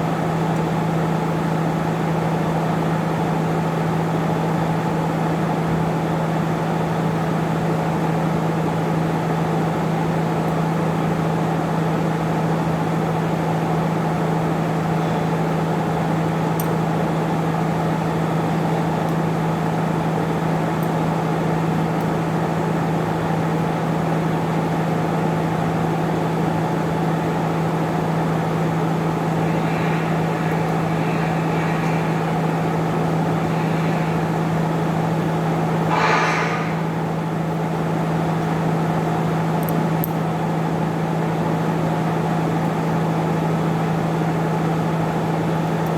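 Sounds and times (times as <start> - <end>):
machine humming: 27.9 - 37.7.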